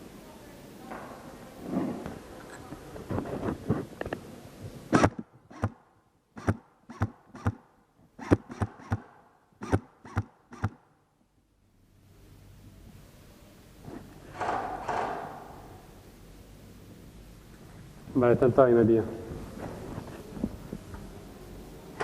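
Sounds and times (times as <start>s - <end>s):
airsoft gun shots: 6.4s - 7.6s, 8.2s - 10.8s.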